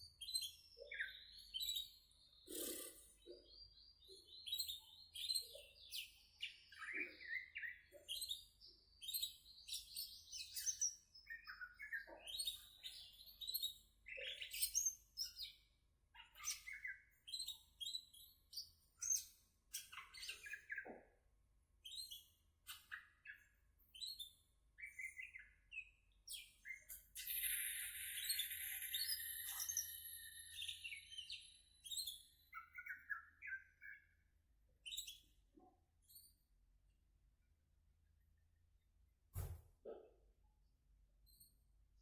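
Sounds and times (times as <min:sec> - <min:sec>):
bird singing: 0:00.0 - 0:21.1, 0:22.8 - 0:35.3.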